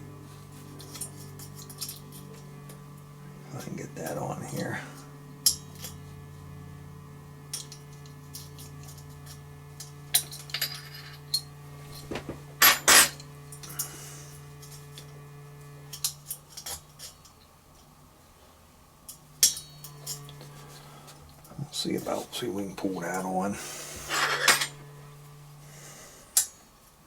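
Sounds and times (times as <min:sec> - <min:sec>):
steady low hum: 0:00.0 - 0:27.0
metal springs clinking: 0:00.8 - 0:02.4.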